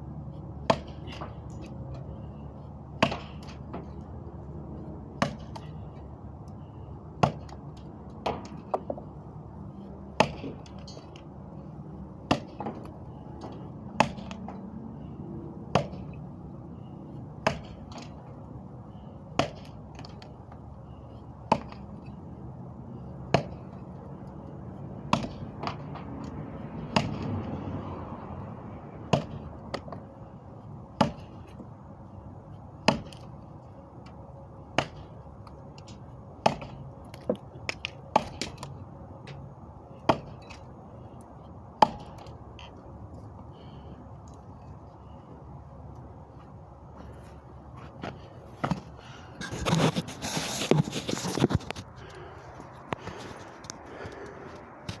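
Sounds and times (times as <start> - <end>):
sharp chopping knocks: 26.9 - 27.3, 32.8 - 33.2.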